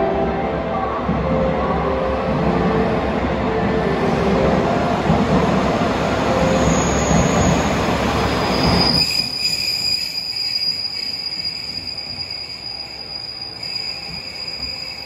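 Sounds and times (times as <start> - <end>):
train cars rumbling past: 2.2 - 15.0
high brake squeal: 8.3 - 15.0.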